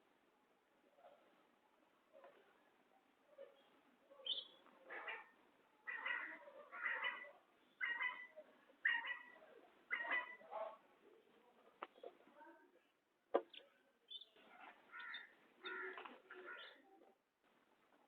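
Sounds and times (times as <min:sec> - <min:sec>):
quail calling harshly: 0:04.9 - 0:10.5, 0:14.9 - 0:16.8.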